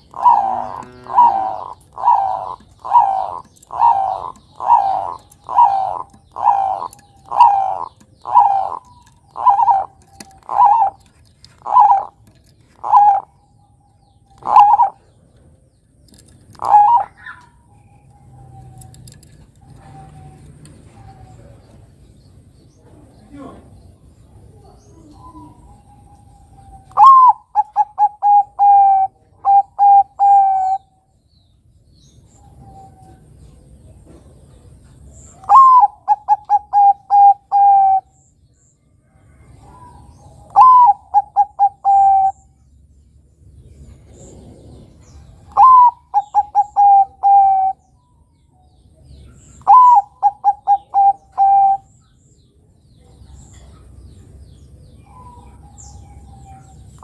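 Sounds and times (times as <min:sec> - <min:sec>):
dove cooing: 0:00.0 - 0:15.4, 0:16.5 - 0:21.9, 0:24.5 - 0:31.0, 0:32.3 - 0:38.2, 0:39.2 - 0:42.6, 0:43.9 - 0:48.0, 0:49.4 - 0:51.9.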